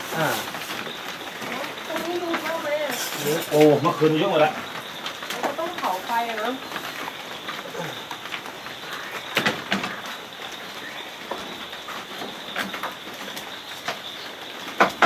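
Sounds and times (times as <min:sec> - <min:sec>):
rain hiss: 0:00.0 - 0:15.0
sharp knocks and clicks: 0:14.7 - 0:15.0.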